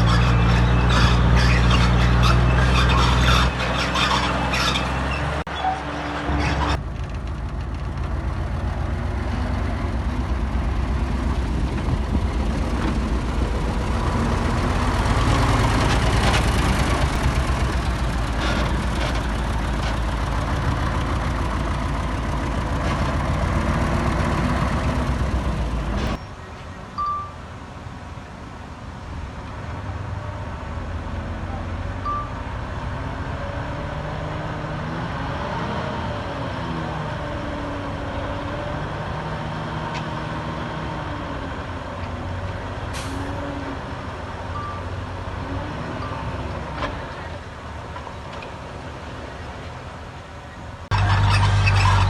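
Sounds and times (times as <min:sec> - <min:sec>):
heavy diesel engine running: 0:06.3 - 0:26.2, 0:50.9 - 0:52.0.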